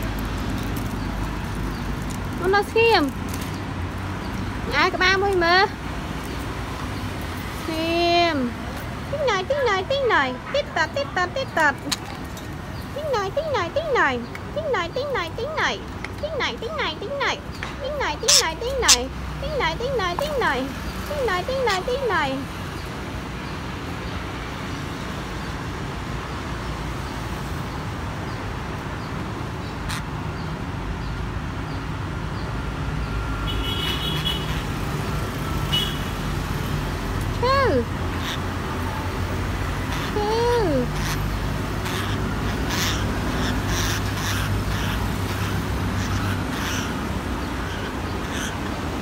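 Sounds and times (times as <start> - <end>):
budgerigars chirping and squawking: 18.0 - 20.6, 29.7 - 30.1, 34.1 - 35.0, 37.5 - 38.6, 39.8 - 49.0.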